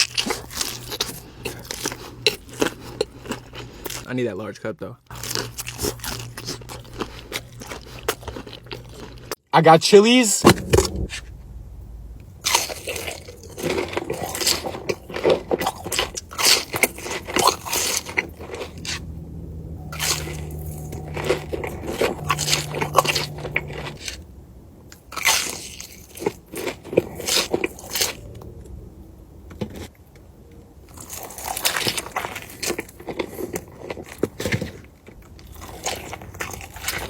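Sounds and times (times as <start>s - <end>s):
crunching and chewing food: 0.0s - 4.2s, 5.1s - 9.4s, 12.4s - 24.2s, 24.9s - 37.0s.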